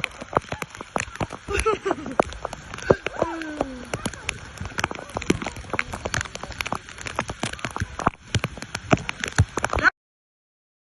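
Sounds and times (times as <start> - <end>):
rapid irregular clicks and taps: 0.0 - 9.9.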